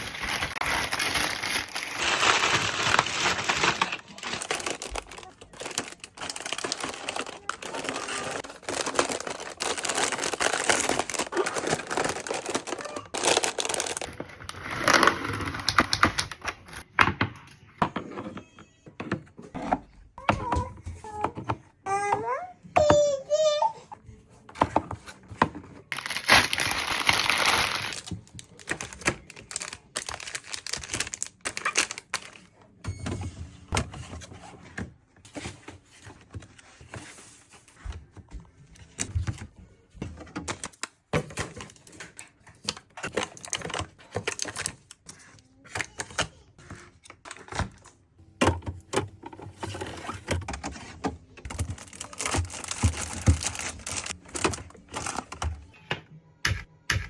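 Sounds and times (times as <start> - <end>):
plastic packaging rustling: 0.0 - 16.9, 25.9 - 32.5, 49.2 - 55.5.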